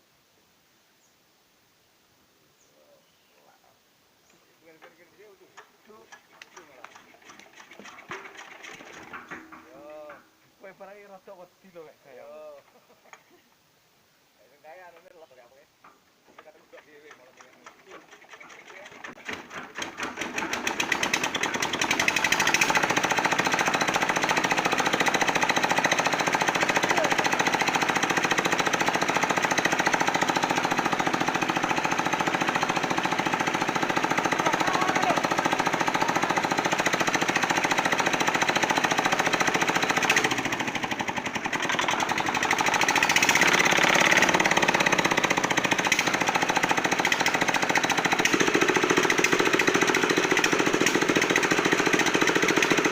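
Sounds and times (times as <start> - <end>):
concrete mixer diesel engine: 5.2 - 10.3, 16.3 - 52.9.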